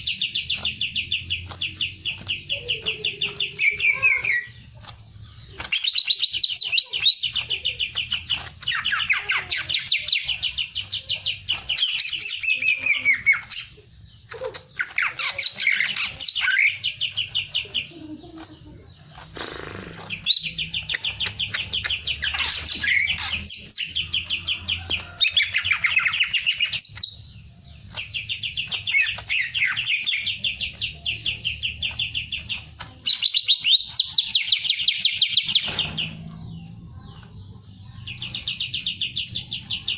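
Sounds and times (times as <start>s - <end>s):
songbird trilling: 19.0s - 27.3s.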